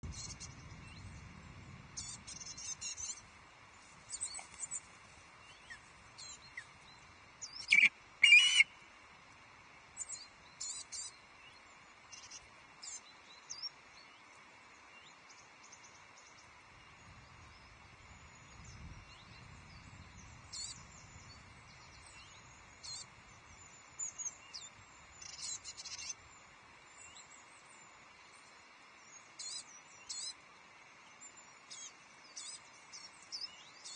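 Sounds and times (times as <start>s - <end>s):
small birds chirping: 2.0s - 8.7s, 10.0s - 33.9s
loud bird calls: 7.5s - 8.7s.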